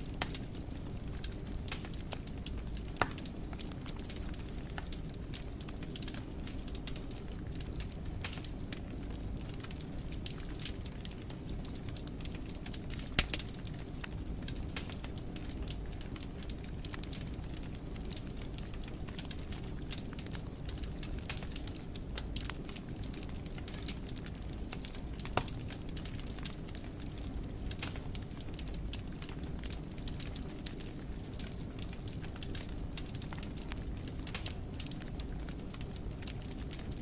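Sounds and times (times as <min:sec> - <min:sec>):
fire crackling in fireplace: 0:00.0 - 0:37.0.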